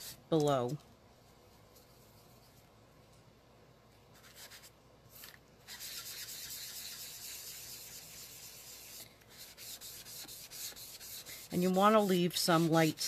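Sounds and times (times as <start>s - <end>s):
sponge rubbing on cardstock: 5.6s - 13.0s.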